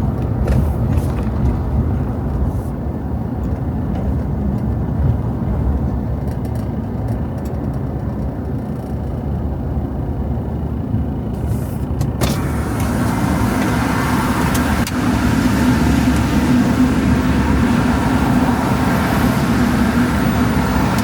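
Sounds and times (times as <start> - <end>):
road noise hiss: 0.0 - 3.4, 10.6 - 21.0
vehicle engine and road rumble: 0.0 - 21.0.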